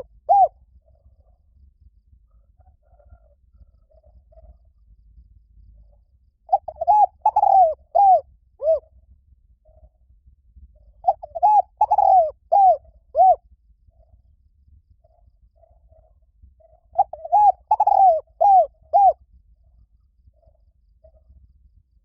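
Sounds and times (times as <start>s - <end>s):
dove cooing: 0.0s - 0.6s, 6.5s - 8.9s, 11.0s - 13.4s, 16.8s - 19.2s.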